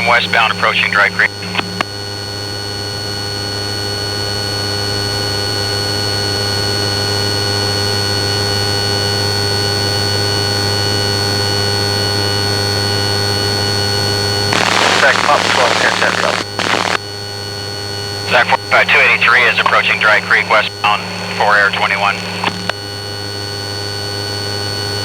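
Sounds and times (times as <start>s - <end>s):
rough radio noise: 0.0s - 1.8s, 14.5s - 17.0s, 18.2s - 22.8s
aircraft cabin electronic hum: 0.0s - 1.9s, 14.5s - 17.0s, 18.2s - 25.0s.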